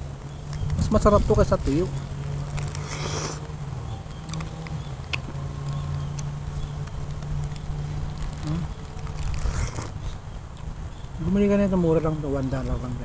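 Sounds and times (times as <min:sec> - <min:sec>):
person chewing soft fruit: 0:01.6 - 0:10.8.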